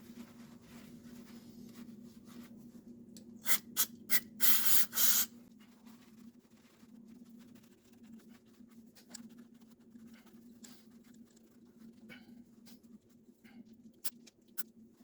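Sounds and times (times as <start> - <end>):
aerosol spray squirts: 3.4 - 5.3.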